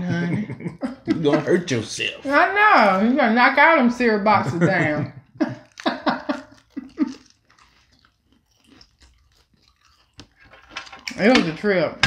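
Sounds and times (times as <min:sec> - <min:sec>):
crunching crisp flatbread: 0:05.5 - 0:11.1.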